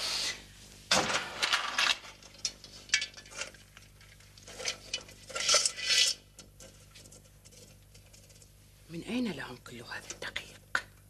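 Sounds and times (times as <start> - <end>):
pots and pans clattering: 1.4 - 3.6.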